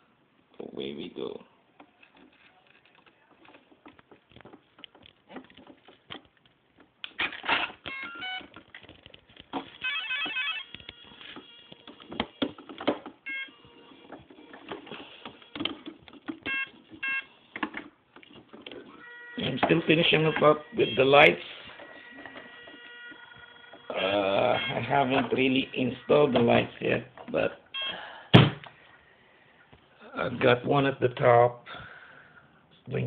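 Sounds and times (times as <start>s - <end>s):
electronic beeps: 13.3s - 13.6s, 19.0s - 26.7s, 27.7s - 28.0s.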